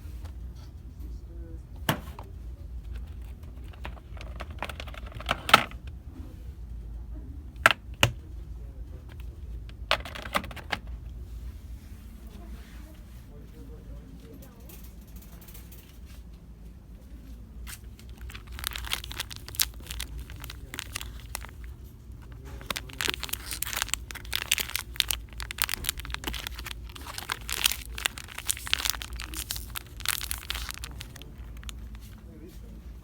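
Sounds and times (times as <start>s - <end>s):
low steady hum: 0.0s - 33.0s
packaging crinkling and crackling: 2.9s - 5.8s, 17.6s - 32.5s.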